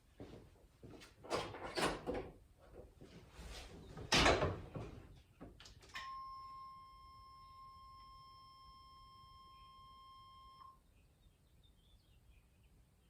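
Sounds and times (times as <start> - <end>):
steady warning tone: 6.0 - 10.8.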